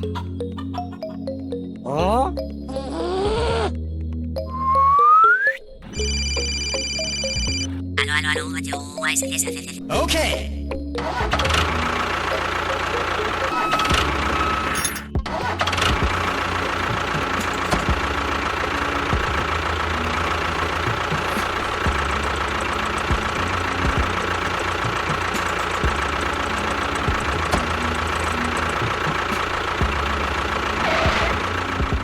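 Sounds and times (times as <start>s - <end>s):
engine chugging: 0.0s - 1.6s, 10.8s - 32.0s.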